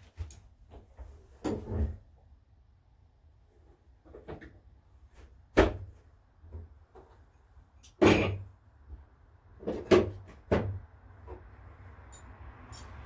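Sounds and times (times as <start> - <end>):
sharp knocks and thumps: 9.6 - 11.5.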